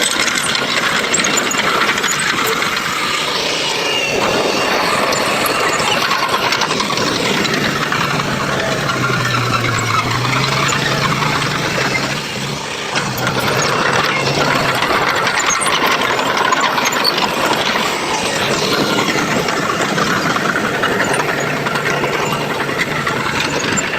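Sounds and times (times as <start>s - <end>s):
construction machinery engine rattling: 0.0s - 23.9s.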